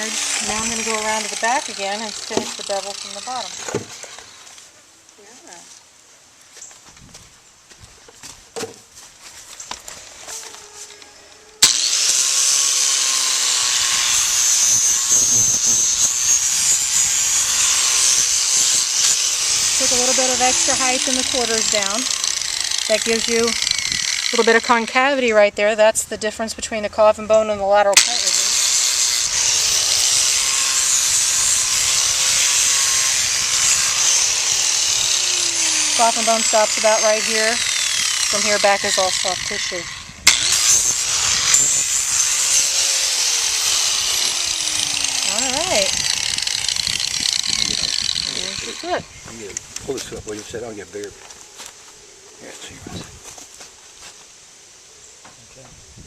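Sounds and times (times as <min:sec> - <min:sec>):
power grinder running: 0:00.0 - 0:04.5, 0:11.6 - 0:25.0, 0:28.0 - 0:49.2
light knocks and rustles: 0:06.5 - 0:10.6.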